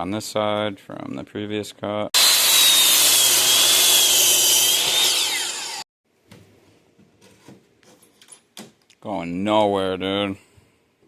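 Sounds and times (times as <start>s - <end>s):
power saw cutting wood: 2.2s - 5.9s.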